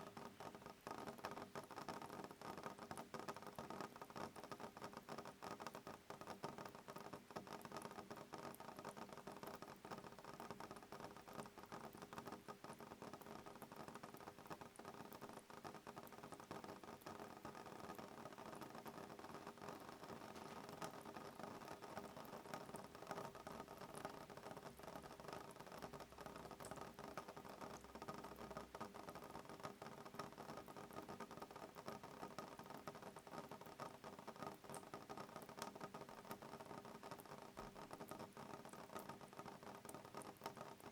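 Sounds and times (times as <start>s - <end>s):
rain pattering on a window: 0.0s - 40.9s.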